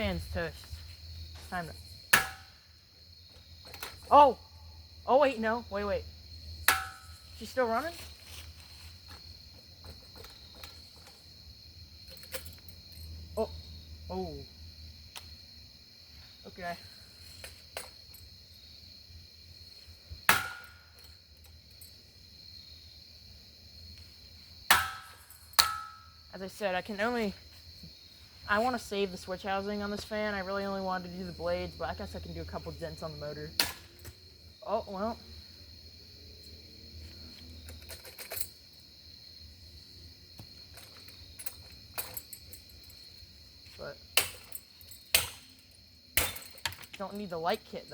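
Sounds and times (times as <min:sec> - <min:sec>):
crickets chirring: 0:00.0 - 0:47.9
strike on metal fan body: 0:02.1 - 0:02.6, 0:06.7 - 0:07.1, 0:20.3 - 0:20.8, 0:24.7 - 0:26.0.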